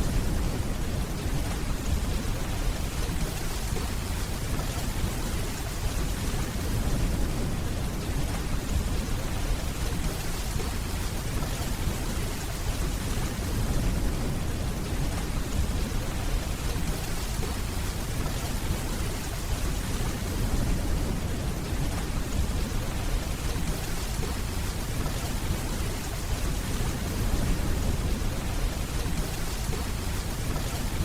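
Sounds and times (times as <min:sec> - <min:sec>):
steady rainfall: 0:00.0 - 0:31.0.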